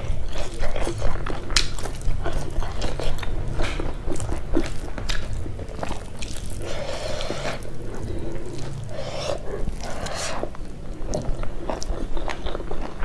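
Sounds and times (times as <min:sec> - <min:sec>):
fingers squishing rice and curry: 0:00.0 - 0:13.0
wet chewing with mouth clicks: 0:00.0 - 0:13.0.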